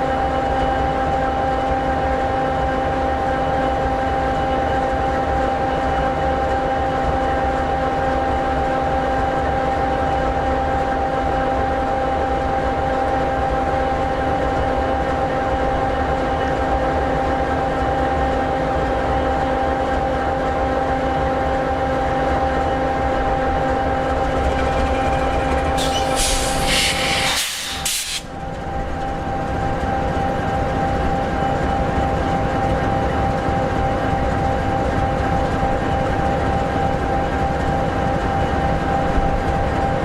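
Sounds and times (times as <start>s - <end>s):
diesel locomotive engine idling: 21.6s - 37.9s
hissing burst: 25.8s - 28.3s.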